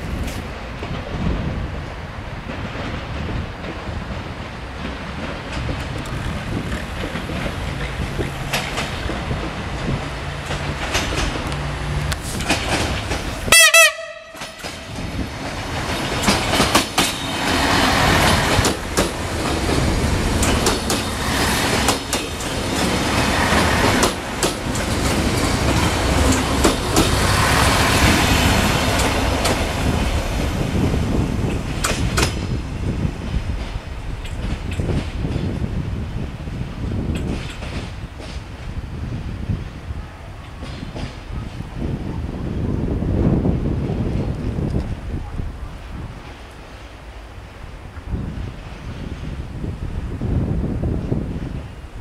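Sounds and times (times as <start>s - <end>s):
wheels clicking over rail joints: 0.0s - 39.5s, 40.4s - 42.0s
train engine humming: 0.0s - 52.0s
train horn blast: 13.5s - 15.0s.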